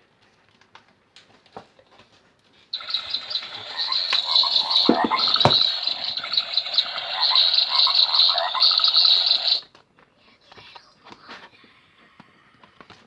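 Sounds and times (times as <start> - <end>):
insects chirping: 2.8 - 9.6
frogs croaking from small speaker: 2.8 - 9.7.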